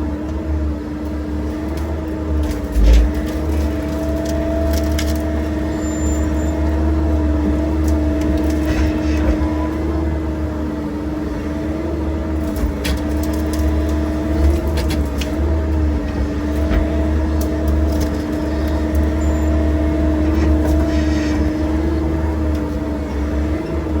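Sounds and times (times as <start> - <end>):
excavator engine droning: 0.0 - 24.0
sharp cracks and clicks: 1.7 - 5.4, 12.4 - 15.4, 16.5 - 19.2.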